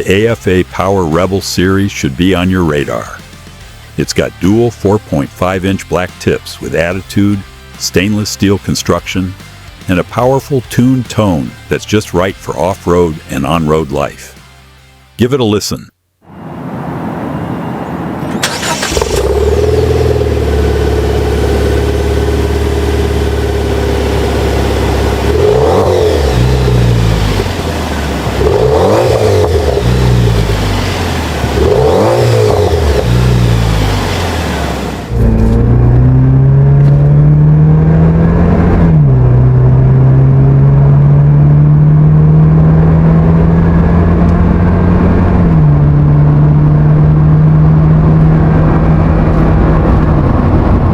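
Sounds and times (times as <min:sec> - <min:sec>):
engine idling and revving: 0:00.0 - 0:14.4, 0:16.3 - 0:50.9
engine accelerating through gears: 0:16.4 - 0:50.9.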